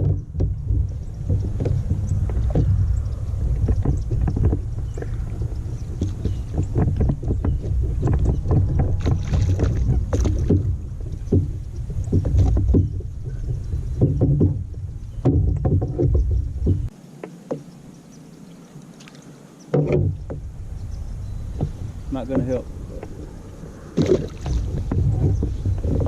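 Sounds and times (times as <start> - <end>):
small knocks and clicks: 0.0 - 17.7
kayak low rumble: 0.0 - 18.4, 19.3 - 26.0.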